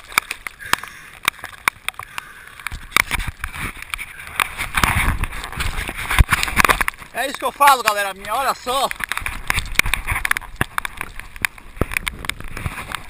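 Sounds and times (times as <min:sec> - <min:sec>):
drops ticking on camera housing: 0:00.0 - 0:13.0
rain falling on sea: 0:00.0 - 0:13.0
water sloshing against camera: 0:00.0 - 0:13.0.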